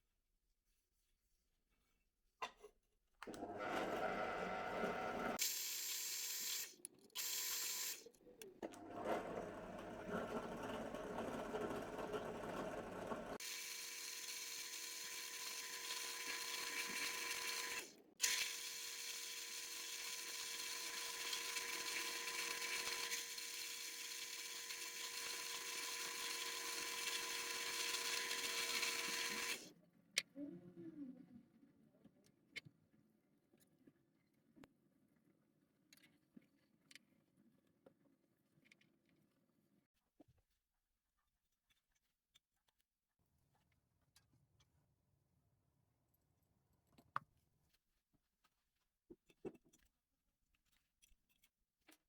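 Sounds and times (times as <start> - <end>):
power tool motor whine: 3.8 - 8.0, 13.4 - 29.7.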